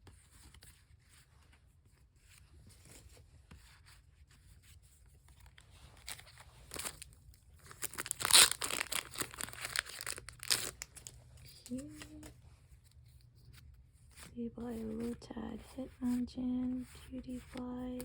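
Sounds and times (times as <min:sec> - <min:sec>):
faint card handling: 0:00.1 - 0:18.0
foil wrapper tearing and crinkling: 0:06.0 - 0:11.8.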